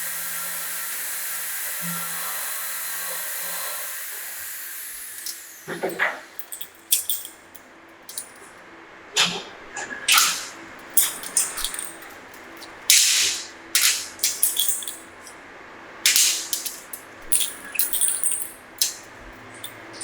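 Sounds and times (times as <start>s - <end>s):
hissing spray bursts: 10.1s - 10.6s, 12.9s - 14.5s, 16.1s - 16.9s.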